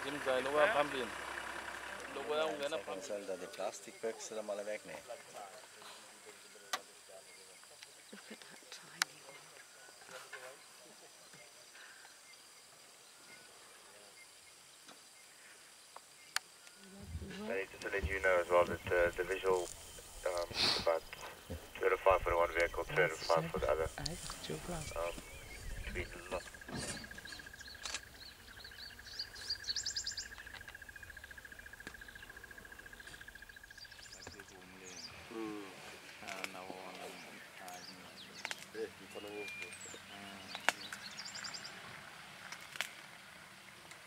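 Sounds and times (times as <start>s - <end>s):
birds chirping: 0.0s - 44.0s
insect drone: 0.0s - 44.0s.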